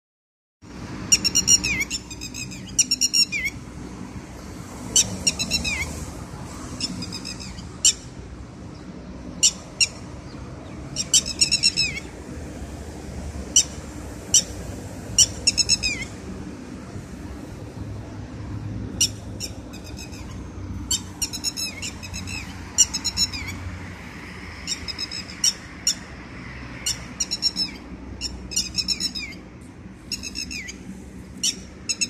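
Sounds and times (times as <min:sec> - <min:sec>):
bird calling loudly: 0:01.1 - 0:03.6, 0:09.3 - 0:12.2, 0:13.5 - 0:16.2, 0:26.8 - 0:32.0.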